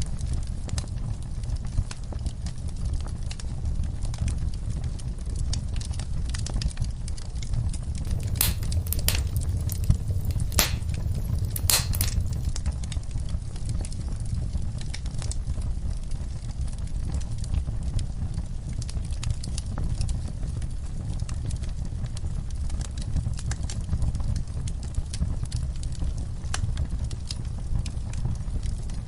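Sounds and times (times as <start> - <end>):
wood fire crackling: 8.0 - 12.5
loud sharp pops: 8.1 - 12.5.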